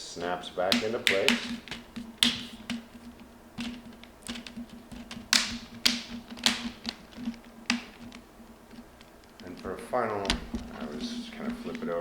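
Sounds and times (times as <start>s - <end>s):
plastic clips snapping into place: 0.6s - 3.0s, 3.6s - 8.2s.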